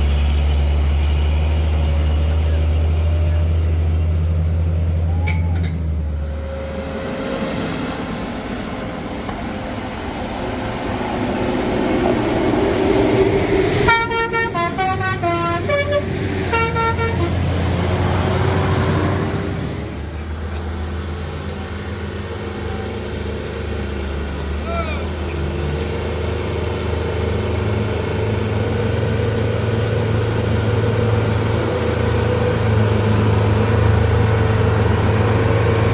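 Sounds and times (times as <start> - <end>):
heavy vehicle engines running: 0.0 - 35.9
multi-tone musical horn: 13.9 - 17.5.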